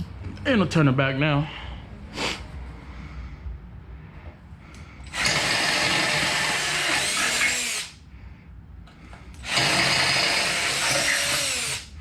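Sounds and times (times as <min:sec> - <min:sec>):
power drill boring through metal: 0:05.1 - 0:08.0, 0:09.4 - 0:11.9.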